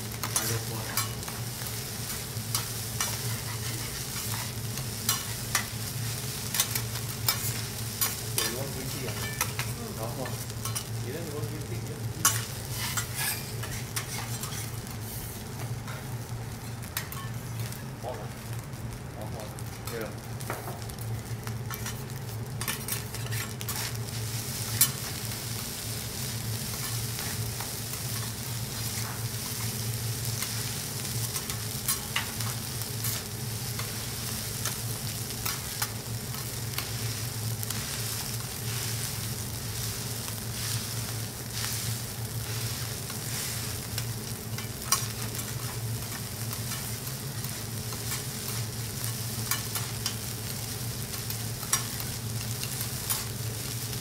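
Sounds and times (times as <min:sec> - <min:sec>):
food sizzling on a griddle: 0:00.0 - 0:54.0.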